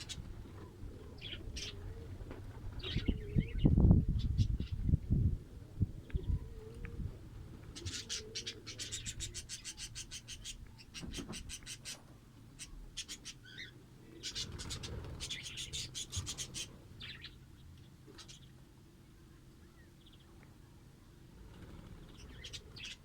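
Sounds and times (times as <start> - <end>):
lovebirds chattering: 0.0 - 2.1, 7.6 - 18.6.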